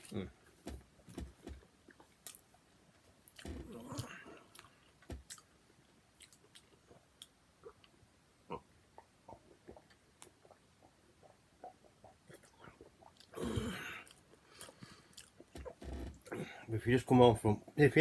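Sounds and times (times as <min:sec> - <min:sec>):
person chewing food: 0:03.2 - 0:08.0, 0:08.9 - 0:16.4.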